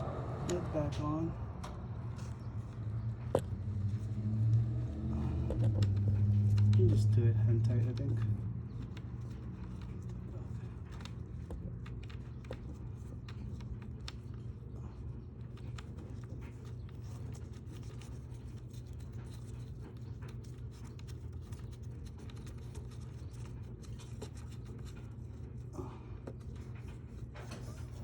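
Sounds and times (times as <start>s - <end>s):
steady low hum: 0.0s - 28.0s
hands clicking and scratching parts: 1.6s - 28.0s.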